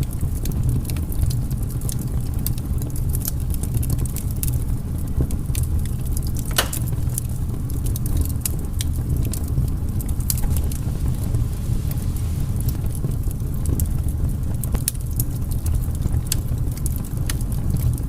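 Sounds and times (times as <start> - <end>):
fire rumbling: 0.0 - 18.0
firewood crackling and popping: 0.0 - 18.0.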